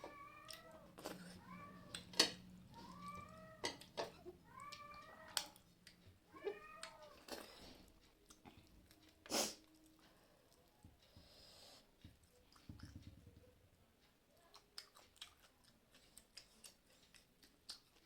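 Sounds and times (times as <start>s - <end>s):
cat meowing: 0.0s - 5.6s, 6.3s - 7.6s.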